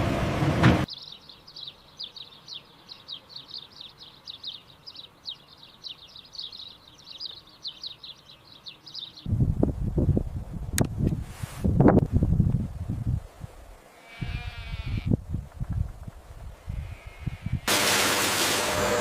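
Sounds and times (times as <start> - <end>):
small bird chirping: 0.9 - 9.3.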